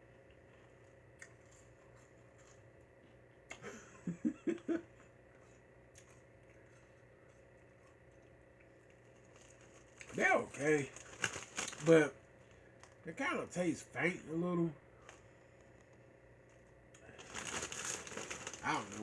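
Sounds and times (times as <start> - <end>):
person chuckling: 3.5 - 4.9.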